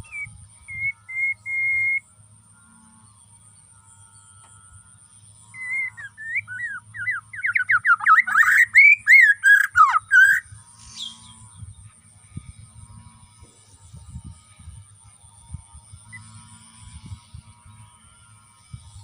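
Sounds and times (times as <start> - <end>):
bird singing whistled notes: 0.0 - 2.1, 5.5 - 11.8.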